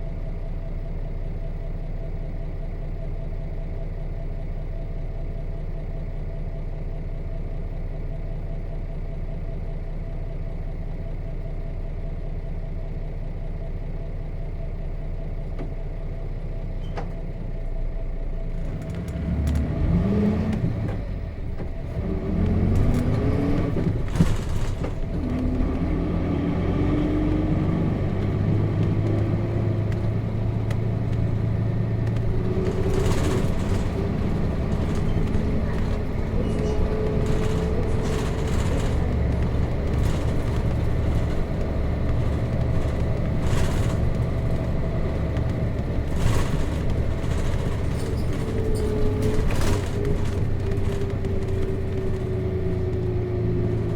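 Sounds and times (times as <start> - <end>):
bus diesel engine idling and revving: 0.0 - 53.9.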